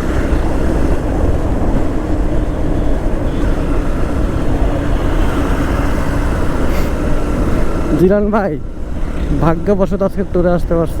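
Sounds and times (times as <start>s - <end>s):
wind rumble on microphone: 0.0s - 8.0s
motorcycle engine running: 0.0s - 10.8s.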